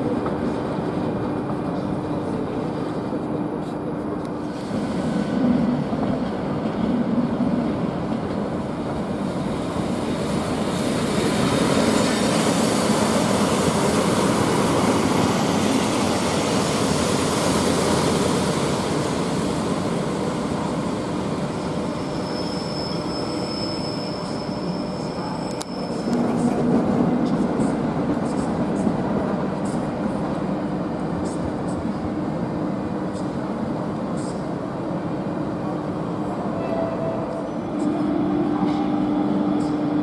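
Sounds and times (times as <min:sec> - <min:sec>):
high wheel squeal: 0:22.0 - 0:26.2.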